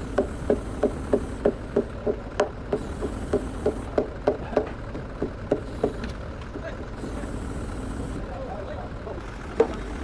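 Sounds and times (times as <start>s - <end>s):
mallet hammering on timber: 0.1s - 6.0s.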